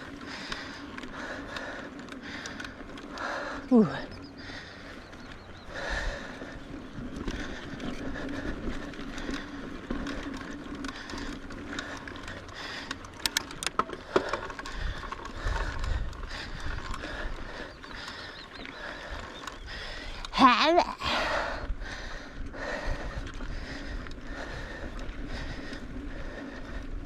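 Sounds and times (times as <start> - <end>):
bike rattling over bumps: 0.0 - 27.0
bike hub ratcheting: 5.7 - 20.4.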